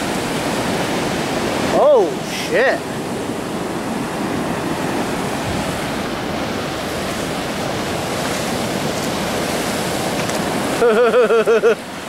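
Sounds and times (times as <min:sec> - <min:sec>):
ocean waves breaking: 0:00.0 - 0:12.0
wind on microphone: 0:02.8 - 0:10.8.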